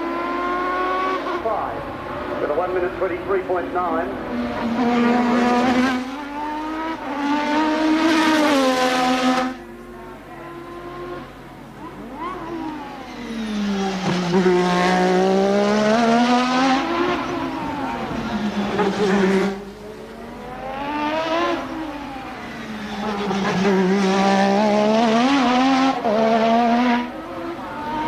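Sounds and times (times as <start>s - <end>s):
race car engine revving: 0.0s - 28.0s.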